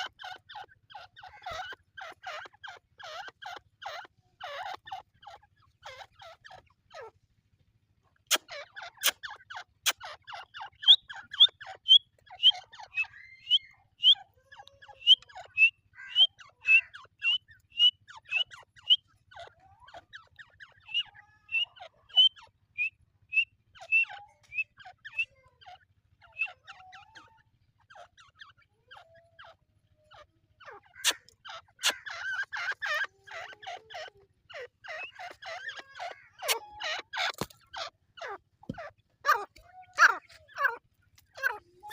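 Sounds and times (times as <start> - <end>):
soft chattering bird notes: 0.0 - 7.3, 8.0 - 41.9
francolins whistling calls: 8.4 - 19.2, 20.8 - 25.4, 30.9 - 38.4.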